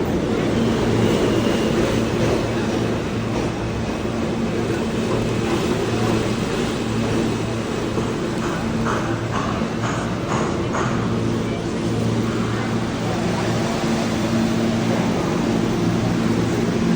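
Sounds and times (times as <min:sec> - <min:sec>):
subway train rumbling on track: 0:00.0 - 0:16.9
train motor hum: 0:00.0 - 0:16.9.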